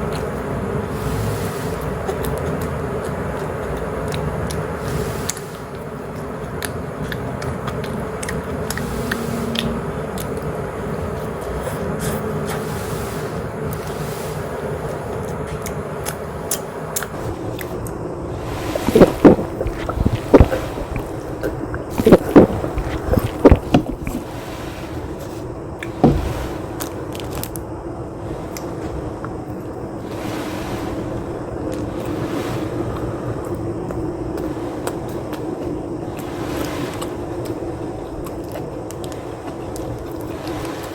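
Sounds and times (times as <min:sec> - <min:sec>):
low background rumble: 0:00.0 - 0:40.9
steady background hiss: 0:00.0 - 0:40.9
person chewing pizza: 0:01.8 - 0:12.8, 0:14.8 - 0:24.6
wet mouth clicks: 0:15.3 - 0:17.8
person biting and chewing pizza: 0:18.4 - 0:24.4.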